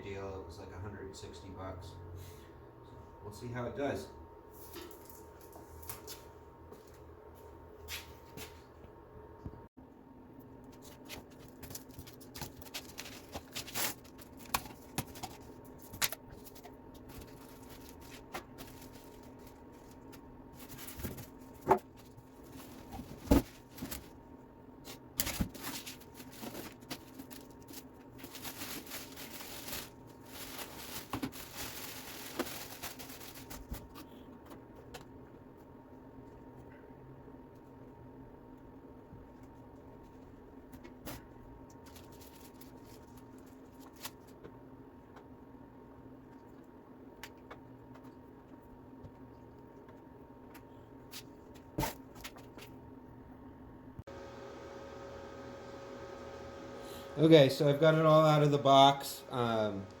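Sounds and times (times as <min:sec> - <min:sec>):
packaging rustling and tearing: 0:10.7 - 0:24.2, 0:24.9 - 0:34.0, 0:41.8 - 0:44.4.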